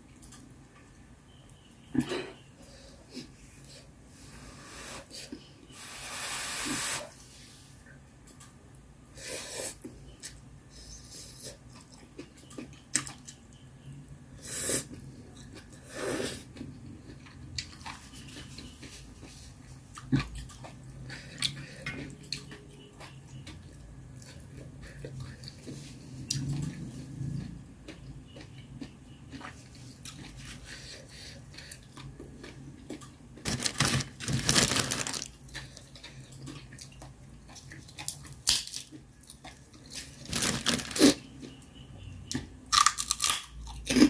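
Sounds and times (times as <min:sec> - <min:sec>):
chewing: 0:31.4 - 0:34.0, 0:35.4 - 0:41.6.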